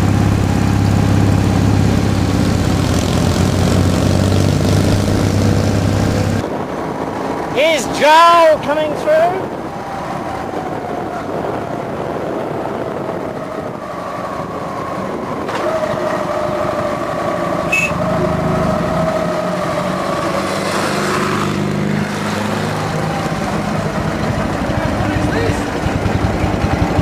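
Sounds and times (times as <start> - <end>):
motorcycle engine running: 0.0 - 6.4, 21.3 - 27.0.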